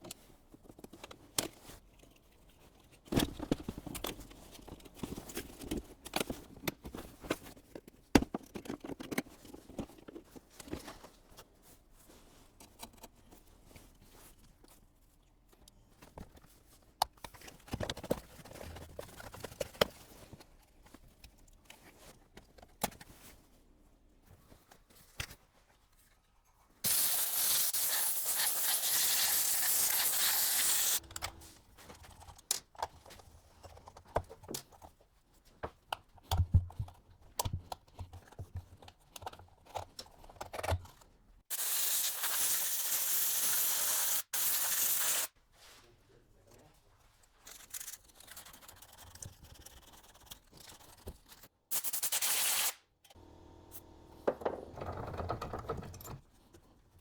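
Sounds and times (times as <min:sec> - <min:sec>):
steady hiss: 0:26.8 - 0:31.0, 0:41.5 - 0:45.3.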